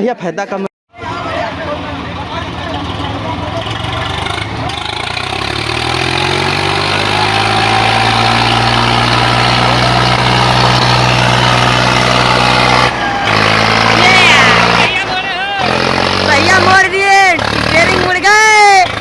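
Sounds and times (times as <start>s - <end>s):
tractor diesel engine revving: 1.0s - 19.0s.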